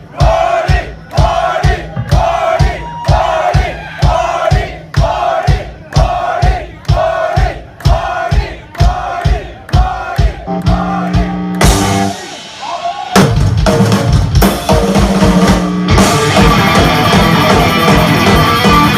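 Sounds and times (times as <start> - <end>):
drum kit hits: 0.0 - 18.9
heavy metal band playing: 0.0 - 18.9
sustained bass and guitar notes: 10.4 - 18.9.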